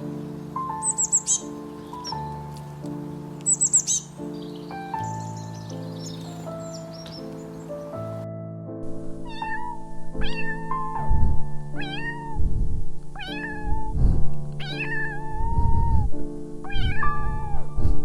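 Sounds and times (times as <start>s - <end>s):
cat meowing: 9.2s - 11.0s, 11.8s - 14.0s, 14.6s - 17.7s.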